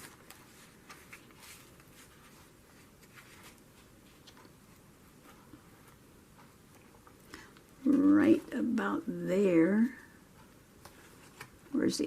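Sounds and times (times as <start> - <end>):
paper rustling: 0.0 - 4.5.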